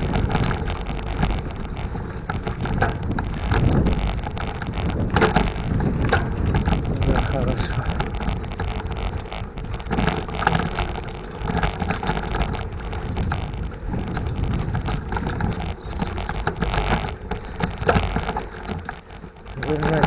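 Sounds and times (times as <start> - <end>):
bike rattling on dirt road: 0.0 - 20.0
wind buffeting microphone: 0.0 - 20.0.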